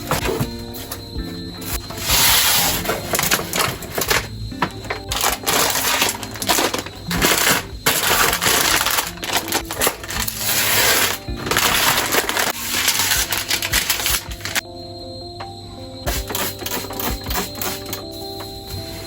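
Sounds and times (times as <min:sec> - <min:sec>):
soft background music: 0:00.0 - 0:19.0
packaging rattling: 0:01.9 - 0:14.6.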